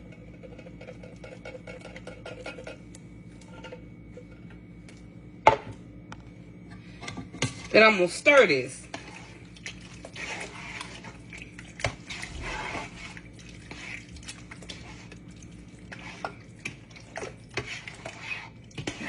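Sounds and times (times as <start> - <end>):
liquid sloshing: 8.8 - 19.0.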